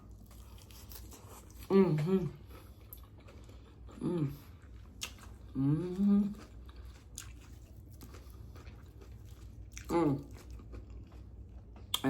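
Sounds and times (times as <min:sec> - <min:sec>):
woman chewing salad: 0:00.0 - 0:12.0
woman humming mm: 0:01.7 - 0:02.4, 0:04.0 - 0:04.4, 0:05.5 - 0:06.4.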